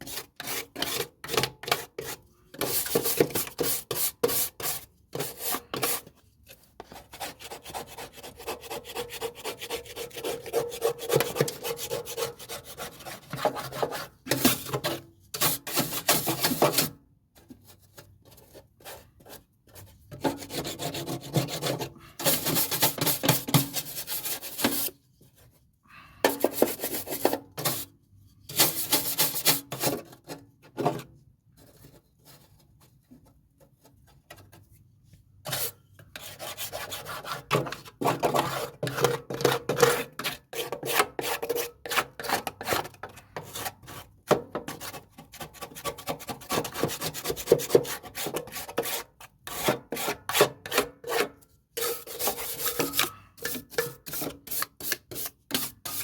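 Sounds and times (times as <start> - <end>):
brush scrubbing metal deck: 2.0 - 6.1, 20.2 - 25.0, 45.6 - 56.0.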